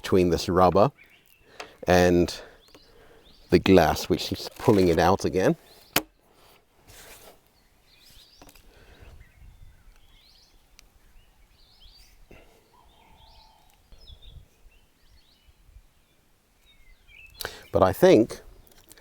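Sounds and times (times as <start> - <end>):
faint bird chirps: 7.5 - 17.8.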